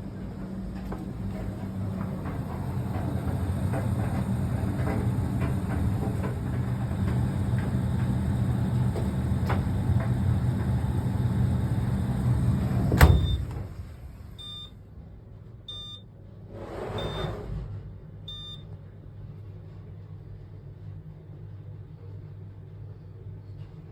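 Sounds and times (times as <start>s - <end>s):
clothes dryer running: 0.0s - 14.7s
dryer clunk: 0.7s - 14.1s
short electronic beeps: 14.4s - 14.7s, 15.7s - 16.0s, 17.0s - 17.4s, 18.3s - 18.6s.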